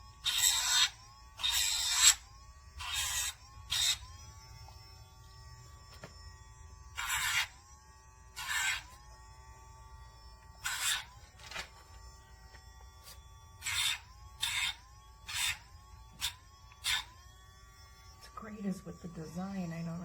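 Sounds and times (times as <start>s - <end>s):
grinding rasp on nail: 0.0s - 4.2s, 6.9s - 7.6s, 8.3s - 9.1s, 10.6s - 11.2s, 13.0s - 17.2s
nail grinder whining: 0.0s - 20.0s.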